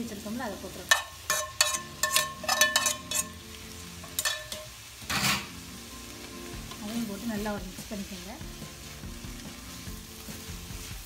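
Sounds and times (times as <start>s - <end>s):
frying sizzle: 0.0s - 11.0s
spatula knocking and scraping wok: 0.8s - 5.6s.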